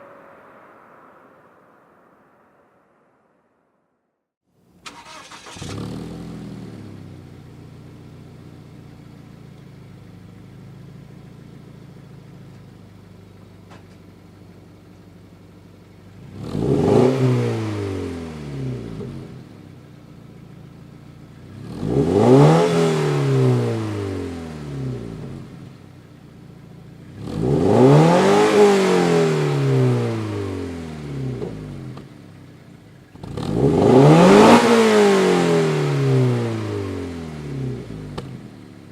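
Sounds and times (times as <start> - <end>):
car engine idling and revving: 4.7 - 38.9.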